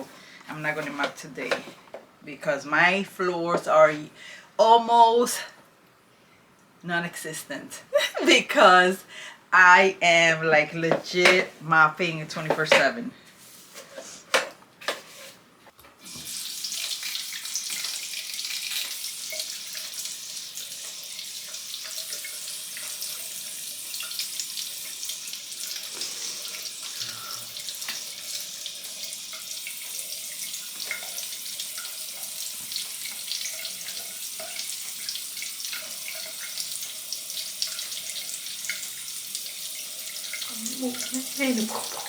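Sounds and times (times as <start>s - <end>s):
tap water running into sink: 16.0s - 42.0s
small splashes and knocks: 41.4s - 42.0s.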